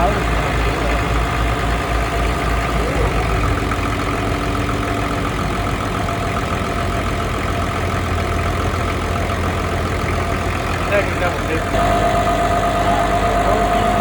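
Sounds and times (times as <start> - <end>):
boat engine idling: 0.0 - 14.0
steady tones: 9.3 - 14.0.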